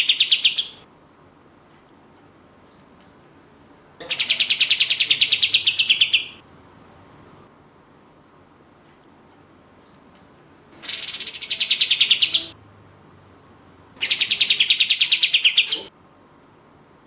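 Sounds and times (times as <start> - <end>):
songbird trilling: 0.0 - 0.8, 4.0 - 6.4, 10.8 - 12.5, 14.0 - 15.9.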